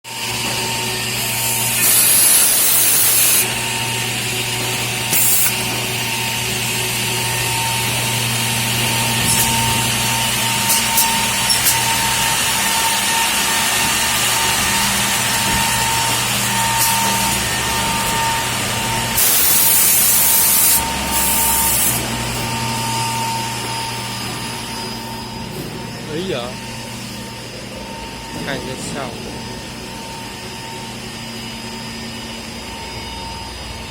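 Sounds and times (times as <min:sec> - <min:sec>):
machine motor hum: 0:00.1 - 0:33.9
machine whine: 0:00.1 - 0:33.9
loud hissing bursts: 0:01.2 - 0:23.6.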